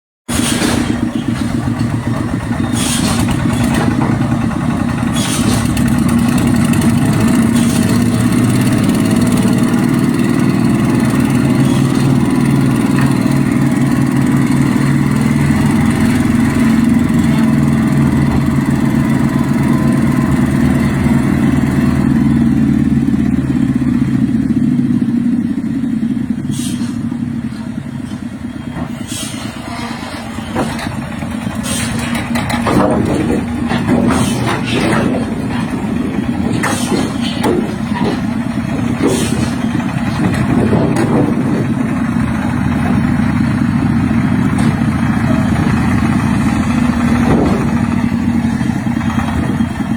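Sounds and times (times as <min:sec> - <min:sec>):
tractor engine running: 0:00.3 - 0:49.9
sharp knocks: 0:31.8 - 0:41.8, 0:47.0 - 0:48.1.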